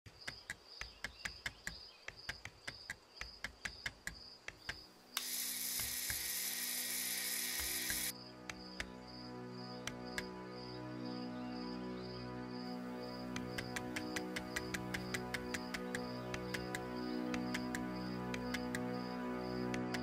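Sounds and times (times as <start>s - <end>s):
loud burst of hiss: 5.2s - 8.1s
ticking click beat: 13.3s - 18.9s.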